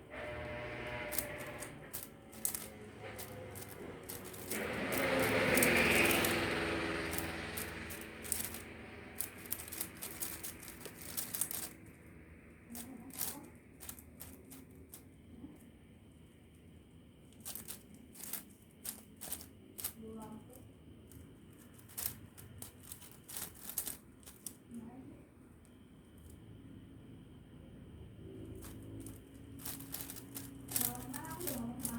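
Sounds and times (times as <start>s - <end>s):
puzzle cube clicking and rattling: 0.2s - 15.2s, 17.3s - 24.8s, 28.4s - 31.9s
rushing background noise: 0.7s - 15.0s.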